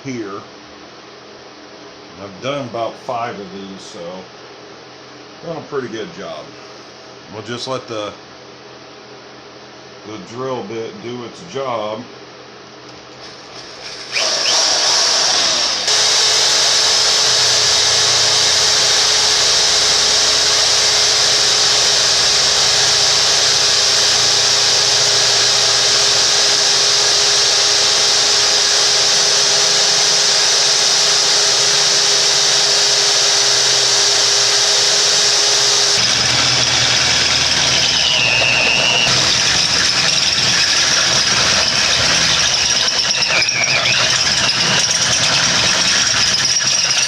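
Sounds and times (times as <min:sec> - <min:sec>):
electric drill motor whine: 0:13.2 - 0:47.0
drill bit cutting metal hiss: 0:13.5 - 0:47.0.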